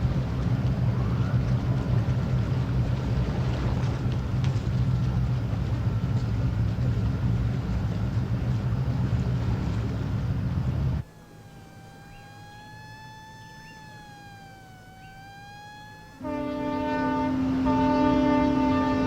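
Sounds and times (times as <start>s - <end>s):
steady low siren tone: 0.0s - 19.0s
wavering siren tone: 11.0s - 19.0s.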